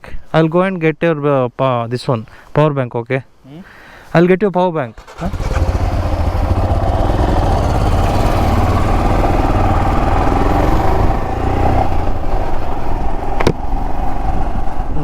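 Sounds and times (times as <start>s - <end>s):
motorcycle engine rumbling: 5.0s - 14.8s.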